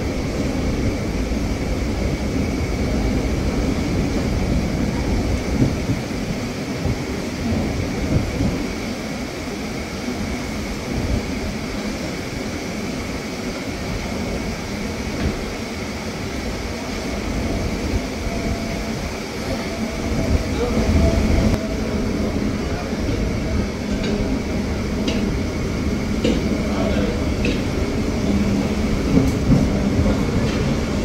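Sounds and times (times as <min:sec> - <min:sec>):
wind rushing past window: 0:00.0 - 0:26.7
train wheels on rails: 0:00.0 - 0:31.0.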